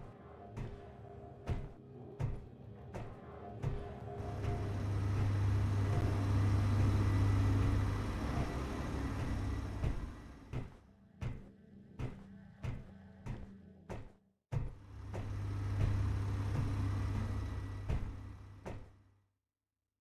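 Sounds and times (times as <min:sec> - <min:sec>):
engine humming: 0:04.2 - 0:10.6, 0:15.0 - 0:18.7.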